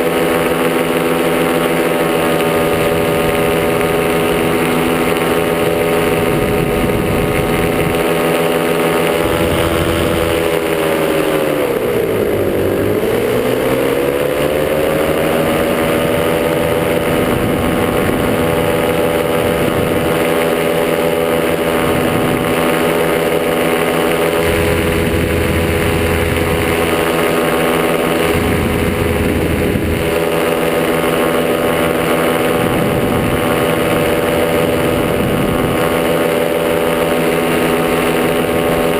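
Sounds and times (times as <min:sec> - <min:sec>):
two-stroke engine running: 0:00.0 - 0:38.9.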